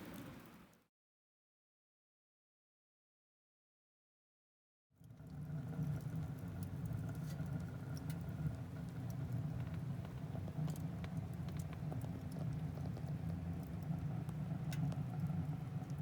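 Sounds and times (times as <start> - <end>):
fire low rumble: 5.1 - 16.0
wood fire crackling and popping: 5.1 - 16.0.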